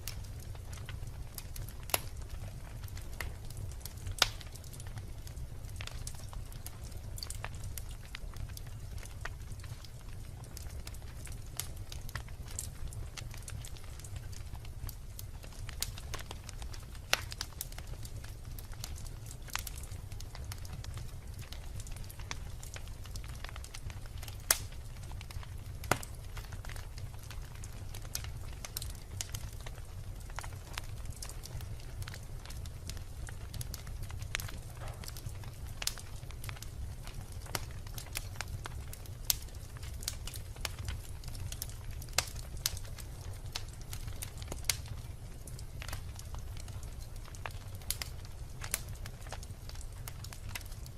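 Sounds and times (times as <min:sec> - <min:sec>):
sharp pops from fire: 0:00.0 - 0:50.9
wood fire crackling: 0:00.0 - 0:50.9.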